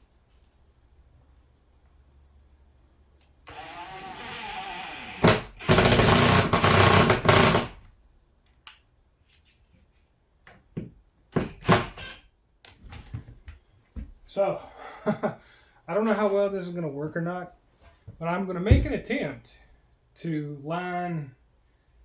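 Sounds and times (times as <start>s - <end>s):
handheld power tool running: 3.5s - 7.8s.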